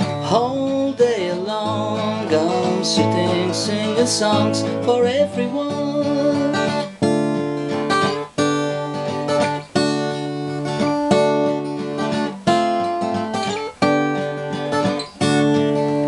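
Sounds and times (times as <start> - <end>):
acoustic guitar strumming chords: 0.0 - 16.0
picked guitar notes: 0.0 - 16.0.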